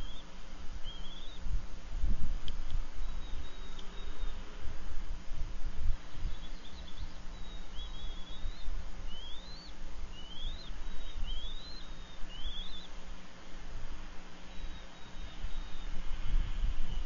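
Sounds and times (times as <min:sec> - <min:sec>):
bird whistled calls: 0:00.0 - 0:01.4, 0:03.0 - 0:04.4, 0:06.3 - 0:12.9, 0:14.5 - 0:15.9.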